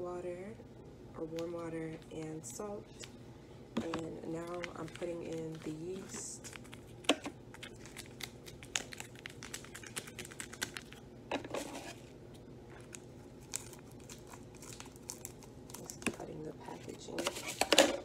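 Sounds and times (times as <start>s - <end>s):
packaging crinkling: 4.3s - 12.1s, 12.7s - 16.2s.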